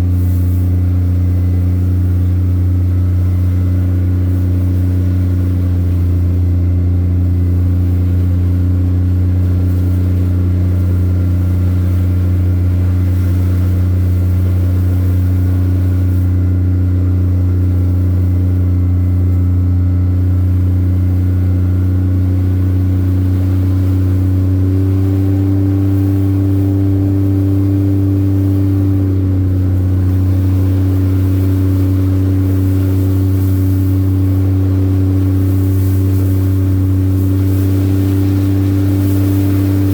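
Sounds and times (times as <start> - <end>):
engine droning steadily: 0.0 - 39.9.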